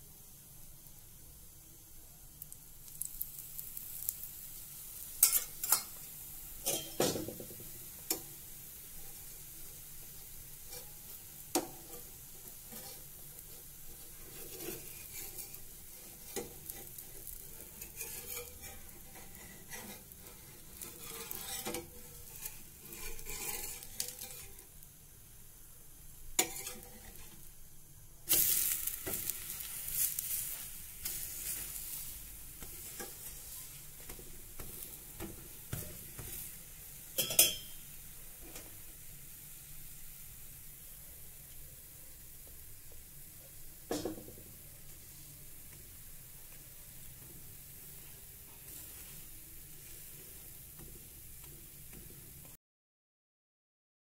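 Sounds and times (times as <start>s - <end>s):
oil sizzling in a pan: 0.0s - 52.6s
metal spoon clinking on pan: 5.2s - 6.0s, 6.6s - 7.1s, 26.4s - 27.2s, 37.2s - 37.8s.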